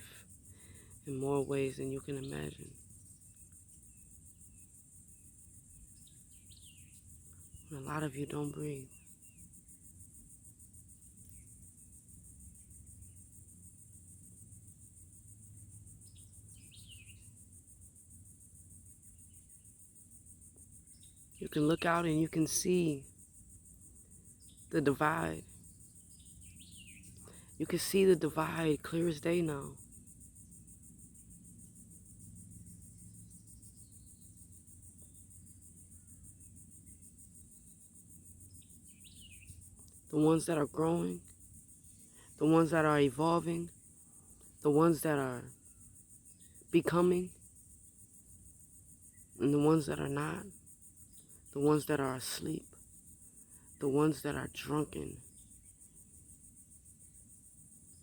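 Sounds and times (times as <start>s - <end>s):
bird chirping: 0.0s - 9.9s, 16.0s - 17.6s, 23.6s - 28.0s, 32.6s - 47.3s
crickets trilling: 0.0s - 58.0s.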